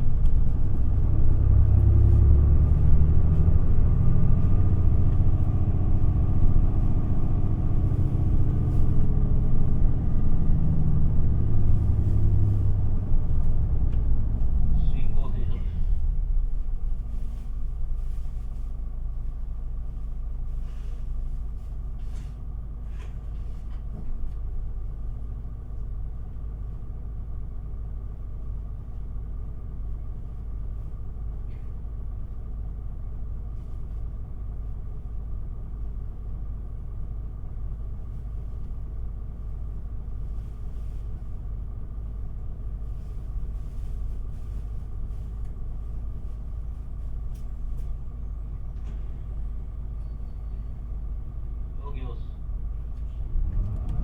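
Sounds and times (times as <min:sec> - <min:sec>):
bus diesel engine: 0:00.0 - 0:54.0
road rumble: 0:00.0 - 0:54.0.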